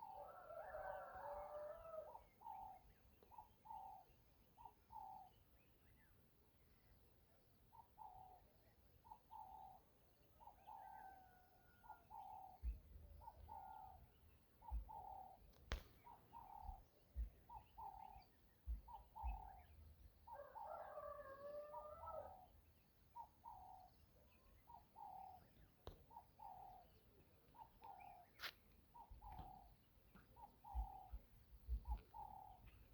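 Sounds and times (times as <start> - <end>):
bird calls: 7.7 - 32.9.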